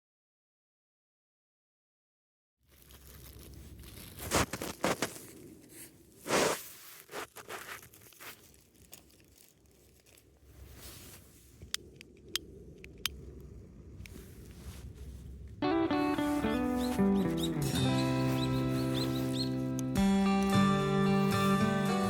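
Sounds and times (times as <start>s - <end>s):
material tearing and crinkling: 2.7s - 11.2s
sharp clicks: 11.6s - 13.2s.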